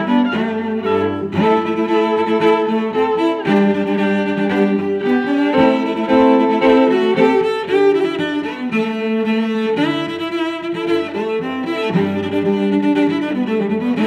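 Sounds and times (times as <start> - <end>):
slow bowed string music: 0.0 - 14.0.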